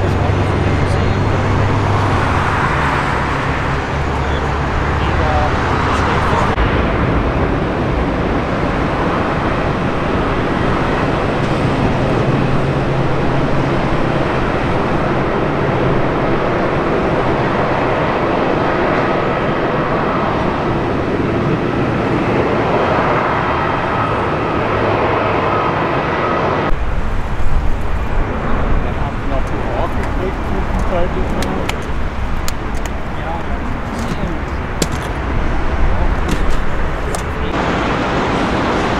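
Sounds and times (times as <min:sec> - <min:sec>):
deep uneven rumble: 0:00.0 - 0:38.9
jet engines running: 0:00.0 - 0:38.9
sharp knocks: 0:34.8 - 0:35.2.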